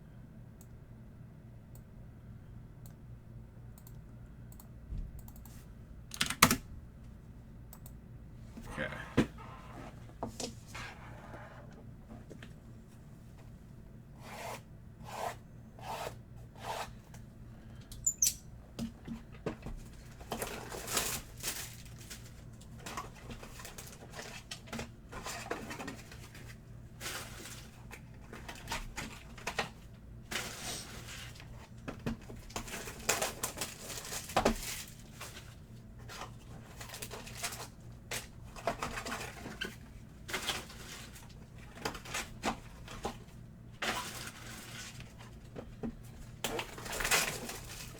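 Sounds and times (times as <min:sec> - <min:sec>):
rustling and crinkling wrappers: 0:19.9 - 0:47.9.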